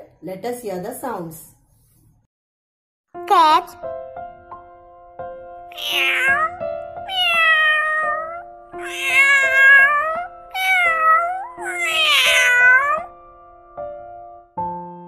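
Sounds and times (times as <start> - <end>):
background music: 3.2 - 15.0
cat meowing: 5.7 - 13.1.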